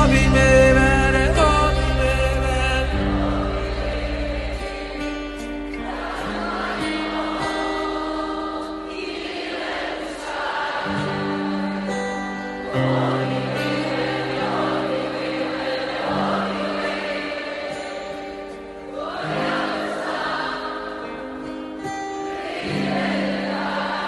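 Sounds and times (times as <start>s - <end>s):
crowd singing a chant: 0.0s - 24.0s.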